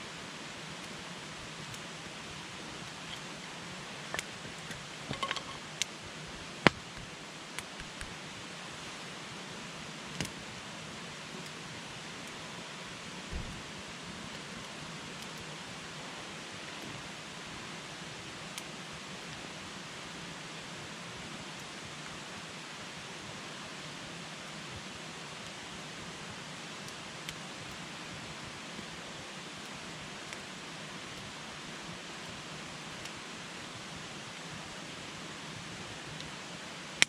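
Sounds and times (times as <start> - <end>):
campfire burning with hiss: 0.0 - 37.0
fire crackles and pops: 0.4 - 9.0, 10.0 - 10.6, 13.2 - 19.5, 24.4 - 31.7, 32.3 - 34.0, 35.6 - 37.0.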